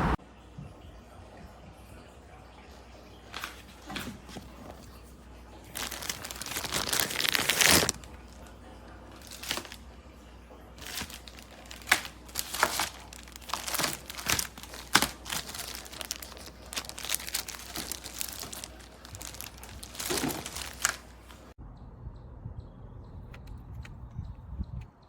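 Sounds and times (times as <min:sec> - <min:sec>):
plastic film crinkling: 0:03.3 - 0:05.0, 0:05.7 - 0:08.4, 0:09.1 - 0:09.9, 0:10.8 - 0:21.6
plastic tearing: 0:05.7 - 0:08.3, 0:09.1 - 0:09.8, 0:10.8 - 0:21.5.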